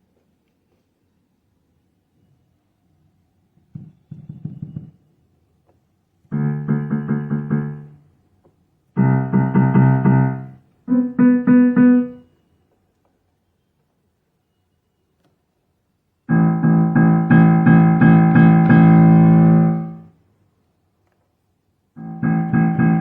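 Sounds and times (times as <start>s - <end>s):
digital piano chords: 6.3s - 8.0s, 9.0s - 12.2s, 16.3s - 20.0s, 22.0s - 23.0s.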